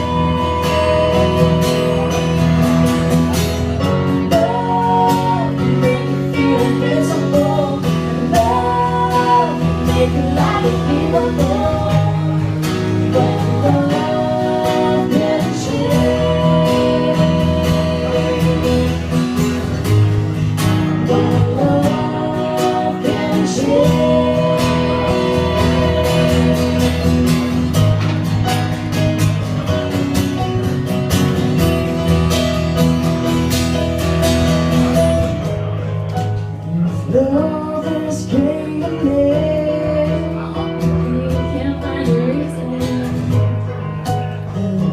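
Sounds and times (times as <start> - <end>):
person singing: 0.0 - 2.9, 3.8 - 19.6, 20.7 - 27.5, 36.6 - 43.6
acoustic guitar: 0.0 - 44.9.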